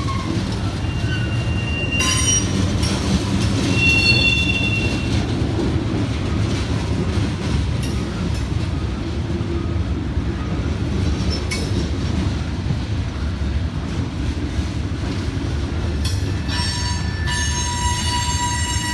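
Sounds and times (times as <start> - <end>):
train wheels rumbling on rail: 0.0 - 18.9.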